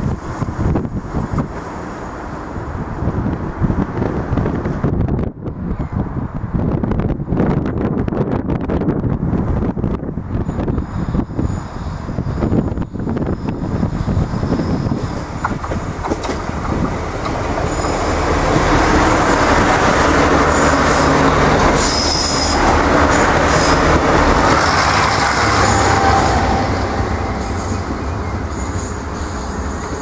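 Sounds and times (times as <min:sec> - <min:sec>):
train wheels rumbling on rails: 0:00.0 - 0:30.0
high-pitched wheel squeals: 0:17.6 - 0:18.1, 0:20.5 - 0:26.8, 0:27.4 - 0:30.0.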